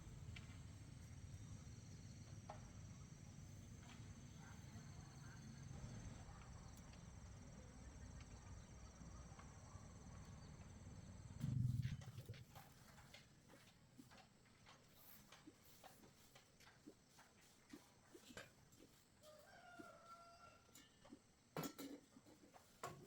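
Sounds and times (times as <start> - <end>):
low rumble: 11.4 - 12.6.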